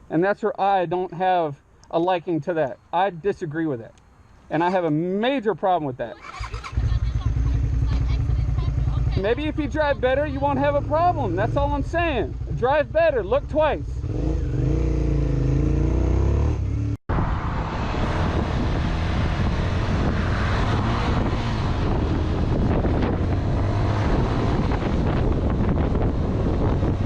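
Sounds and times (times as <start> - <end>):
engine at low revs: 6.2 - 27.0
motorcycle engine rumble: 6.2 - 27.0
wind noise on microphone: 16.5 - 27.0.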